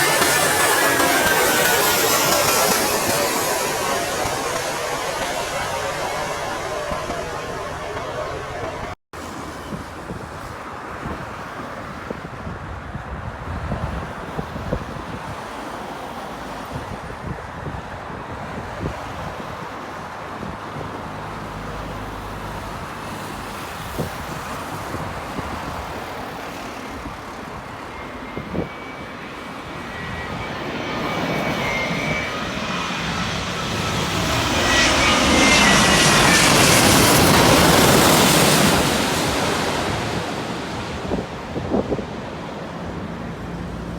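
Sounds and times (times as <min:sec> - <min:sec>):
jet airliner engine whine: 0:00.0 - 0:09.7, 0:21.5 - 0:43.9.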